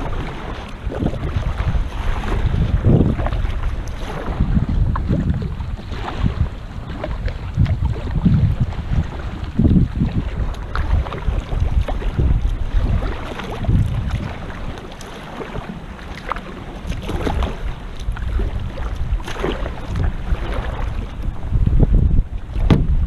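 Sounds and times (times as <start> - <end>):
water slapping against kayak hull: 0.0 - 23.0
wind buffeting microphone: 0.0 - 23.0.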